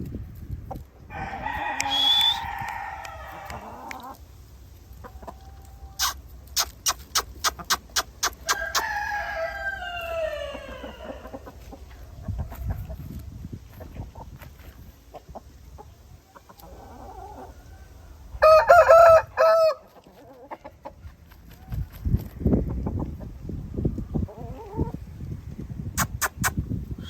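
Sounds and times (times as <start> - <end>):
rooster crowing: 1.1 - 3.9, 8.5 - 11.4, 17.4 - 19.8.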